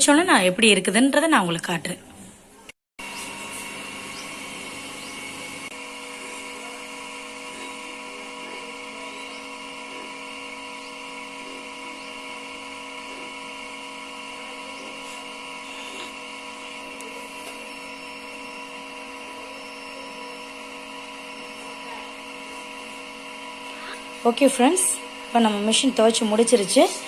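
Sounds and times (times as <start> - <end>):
washing machine motor whine: 0.0 - 27.0.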